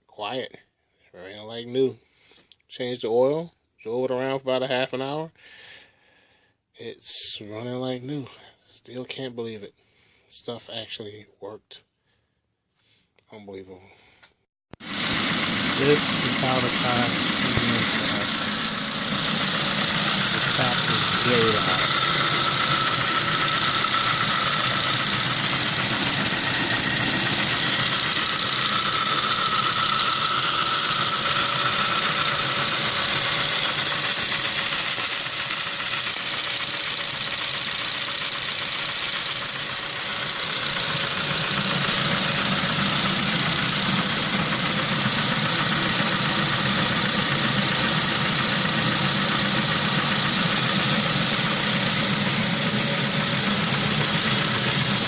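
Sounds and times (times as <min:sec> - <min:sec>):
loud engine lifter tick: 0:14.7 - 0:55.0
car engine running: 0:14.8 - 0:55.0.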